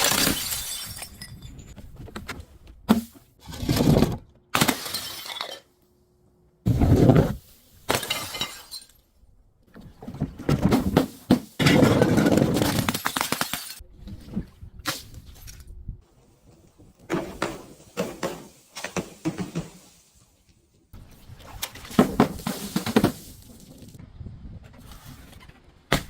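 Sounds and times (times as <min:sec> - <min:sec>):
glass breaking and crunching: 0:00.0 - 0:01.8, 0:04.6 - 0:05.7, 0:07.9 - 0:09.0.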